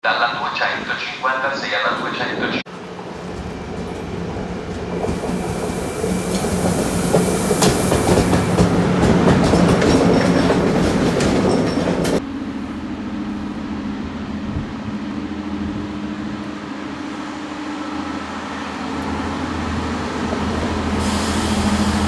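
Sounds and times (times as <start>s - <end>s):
train wheels clicking over rails: 3.2s - 12.2s.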